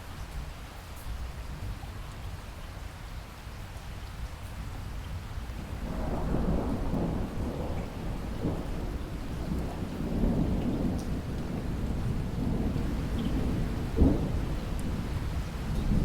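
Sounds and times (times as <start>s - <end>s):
steady rain: 0.0s - 16.0s
thunder rumbling: 5.8s - 16.0s.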